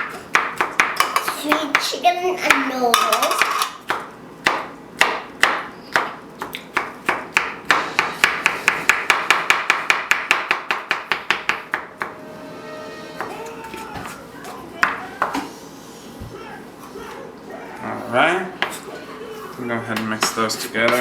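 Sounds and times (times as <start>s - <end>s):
knife chopping on cutting board: 3.9s - 12.2s.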